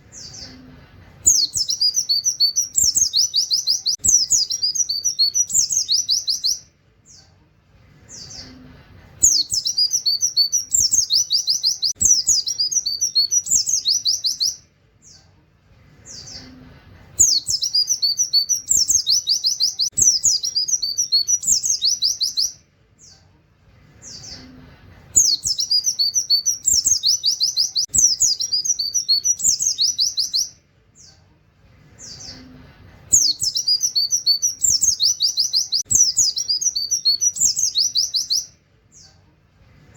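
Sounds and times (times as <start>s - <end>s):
bird singing trilled song: 0.0s - 7.4s, 9.2s - 15.3s, 17.2s - 23.3s, 25.1s - 31.2s, 33.1s - 39.2s.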